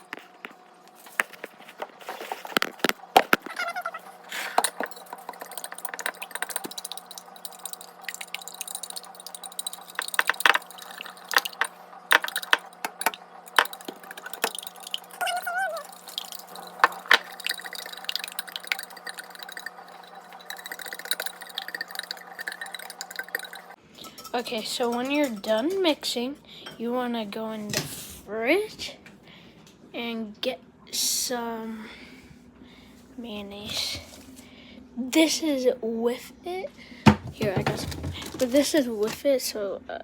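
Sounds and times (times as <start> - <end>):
wet sloshing: 1.4 - 23.8.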